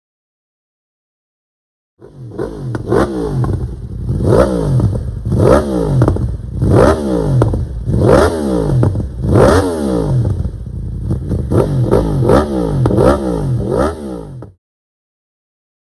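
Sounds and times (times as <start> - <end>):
motorbike engine revving: 2.0 - 14.6.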